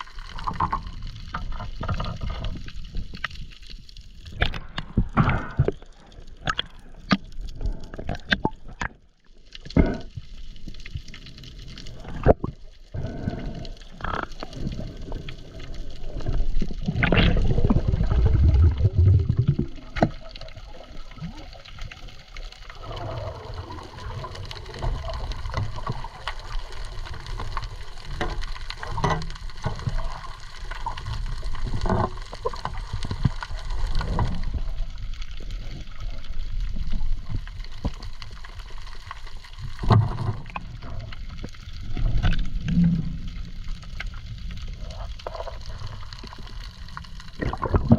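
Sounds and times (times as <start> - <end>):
water sloshing and gurgling: 0.0 - 47.9
sharp underwater clicks: 4.2 - 9.0.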